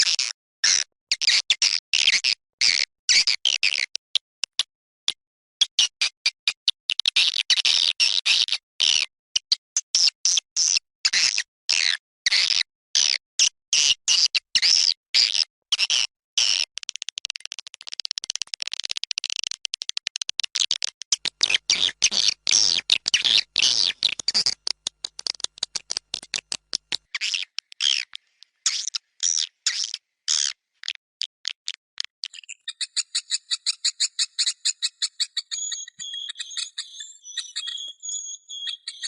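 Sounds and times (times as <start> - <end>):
swiftlet chirps and twitters: 32.2 - 39.0
fast high tweets: 32.3 - 39.0.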